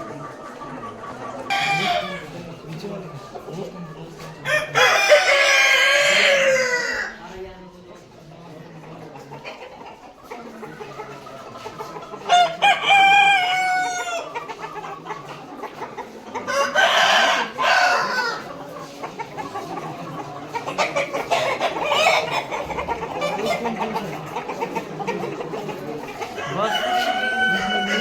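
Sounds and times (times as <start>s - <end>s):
chickens clucking: 0.0s - 28.0s
roosters crowing: 1.5s - 2.4s, 4.4s - 7.2s, 12.3s - 14.4s, 16.4s - 18.5s, 26.2s - 28.0s.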